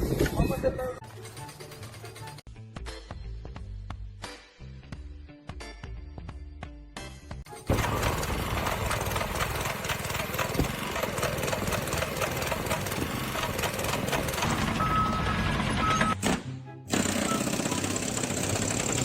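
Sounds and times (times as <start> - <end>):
machine running with rattling beat: 7.6 - 14.8, 16.9 - 19.0.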